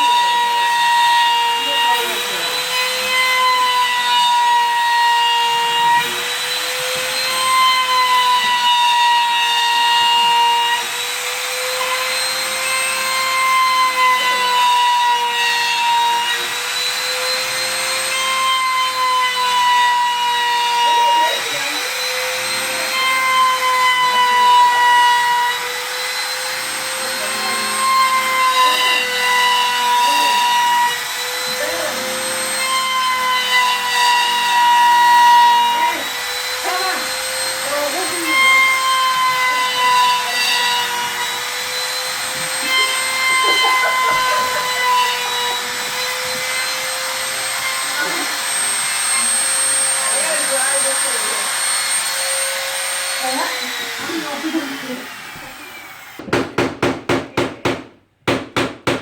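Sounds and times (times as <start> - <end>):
electric motor whining: 0.0 - 56.2.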